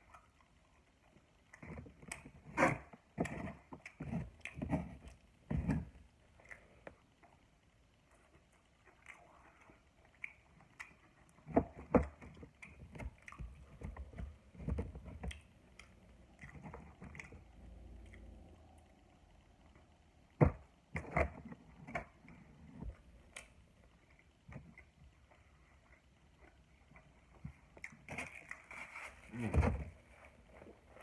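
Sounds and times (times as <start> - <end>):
chewing and eating: 0.0 - 31.0.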